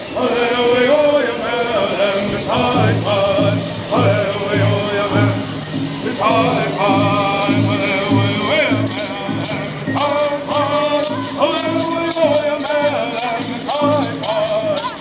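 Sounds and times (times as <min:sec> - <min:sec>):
gourd rattles shaking: 0:00.0 - 0:15.0
group singing in unison: 0:00.0 - 0:15.0.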